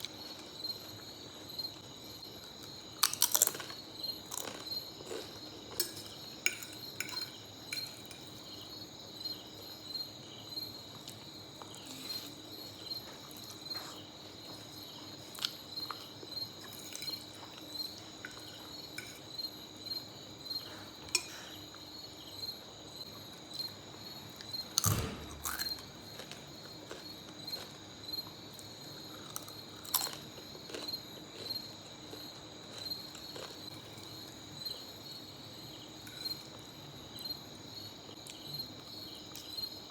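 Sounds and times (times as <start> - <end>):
insects chirping: 0.0 - 39.9
chewing spaghetti: 2.4 - 6.0, 24.4 - 27.8, 28.5 - 34.8.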